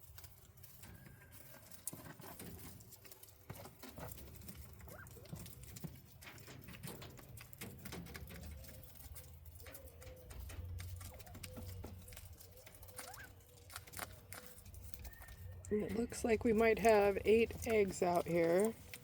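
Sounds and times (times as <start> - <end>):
quail scratching and pecking: 0.0 - 19.0
soft quail calls: 8.7 - 15.7.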